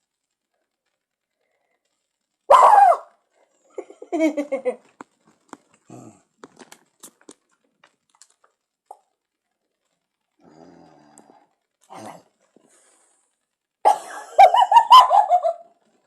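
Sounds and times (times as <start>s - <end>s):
cat yowling: 2.5s - 3.1s.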